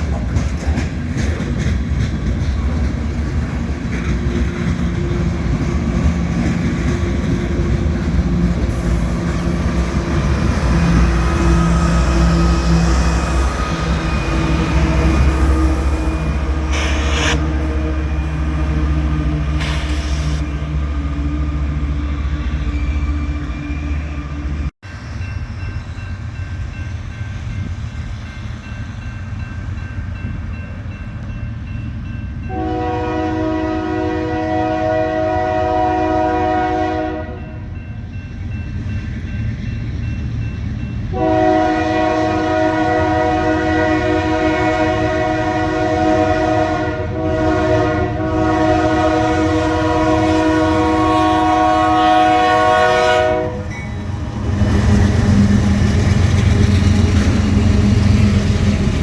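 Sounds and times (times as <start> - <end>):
diesel locomotive engine rumbling: 0.0 - 59.0
train rolling by: 0.0 - 59.0
locomotive air horn blasts: 14.1 - 18.9, 32.5 - 37.6, 41.1 - 53.7.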